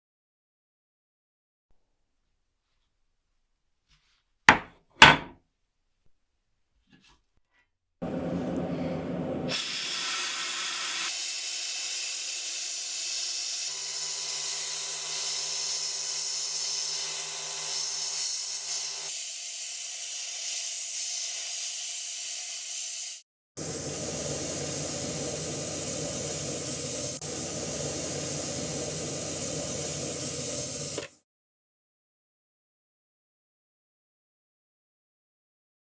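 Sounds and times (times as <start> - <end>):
compressed air hissing: 9.5 - 21.8, 22.6 - 31.1
steady hum: 23.6 - 31.0.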